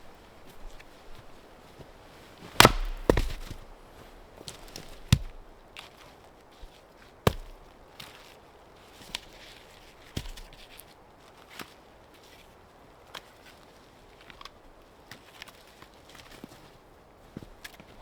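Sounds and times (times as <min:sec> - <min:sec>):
axe chopping wood: 0:02.6 - 0:03.8, 0:04.5 - 0:05.5, 0:07.3 - 0:07.8.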